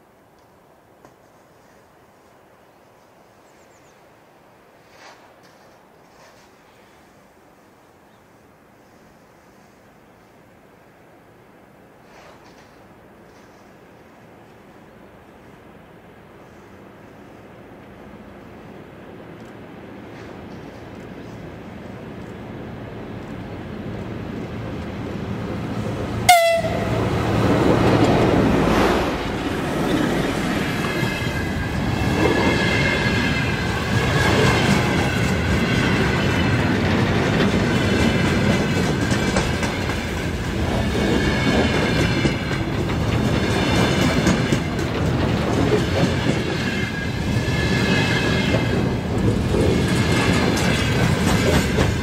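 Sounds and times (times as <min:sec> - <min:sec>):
wagons rumbling and clacking: 0:27.0 - 0:46.6, 0:48.5 - 0:52.0.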